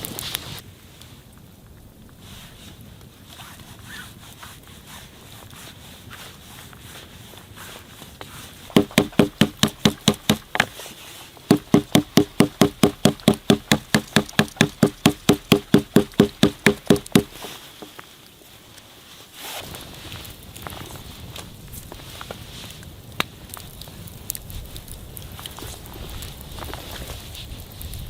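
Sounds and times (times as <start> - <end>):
sharp ringing knocks: 8.8 - 10.7, 11.5 - 17.4.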